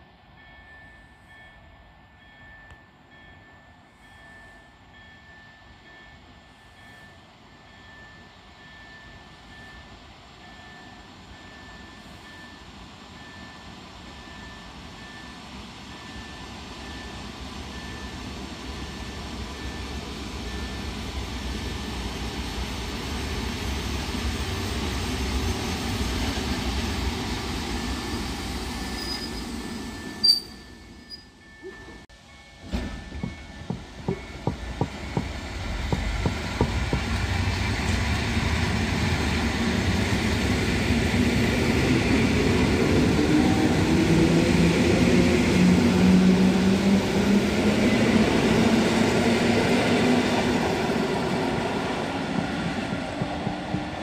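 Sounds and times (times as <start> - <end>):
electric train running on rails: 0.0 - 54.0
high brake squeal: 27.8 - 32.0.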